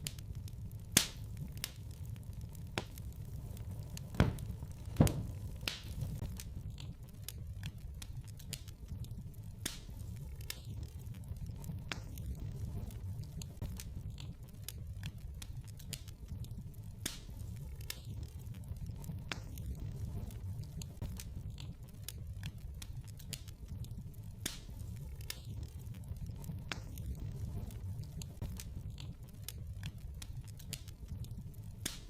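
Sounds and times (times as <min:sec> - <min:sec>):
low rumble of burning logs: 0:00.0 - 0:32.0
wood fire crackling: 0:00.0 - 0:32.0.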